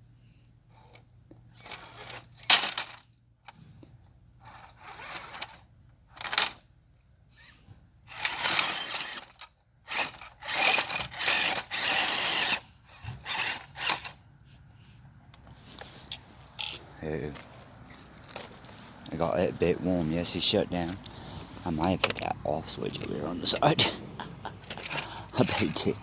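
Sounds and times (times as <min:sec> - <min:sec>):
toy car electric motor whirring: 0:00.7 - 0:03.6, 0:04.4 - 0:14.2.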